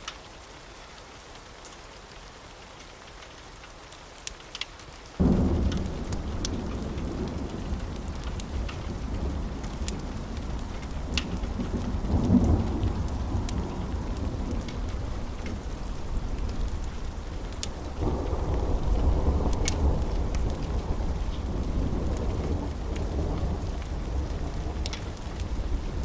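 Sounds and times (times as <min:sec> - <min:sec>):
steady rain: 0:00.0 - 0:26.0
wood fire crackling: 0:00.0 - 0:26.0
rolling thunder: 0:05.2 - 0:26.0.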